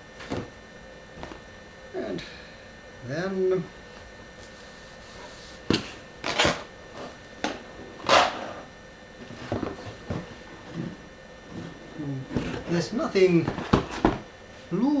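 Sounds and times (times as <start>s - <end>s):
items rustling in cardboard box: 9.2s - 14.7s.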